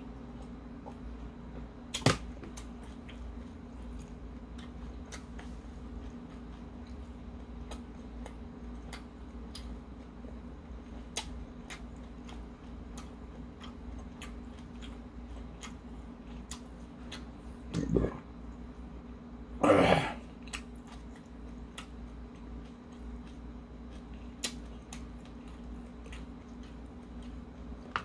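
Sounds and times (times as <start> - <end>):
low hum: 0.0 - 20.3
person chewing: 1.9 - 18.2, 20.0 - 28.0.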